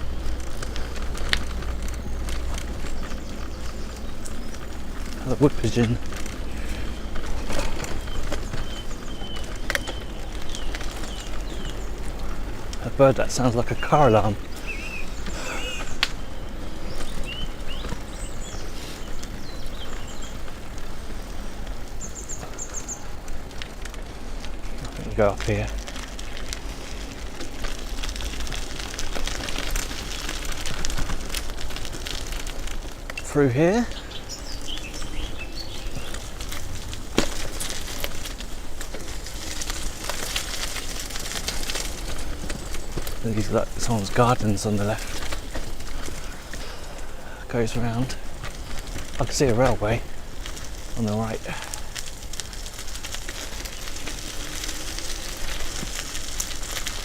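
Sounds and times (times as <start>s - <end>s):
bicycle clicks and rattles: 0.0s - 57.0s
bicycle tyres on rough path: 0.0s - 57.0s
bird whistling calls: 13.7s - 20.4s.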